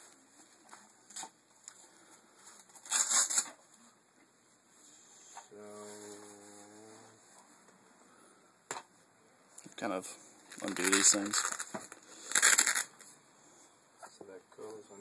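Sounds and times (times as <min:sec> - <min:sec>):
crinkling or tearing: 0:02.5 - 0:03.6, 0:10.5 - 0:13.1
packaging being handled: 0:10.5 - 0:13.1.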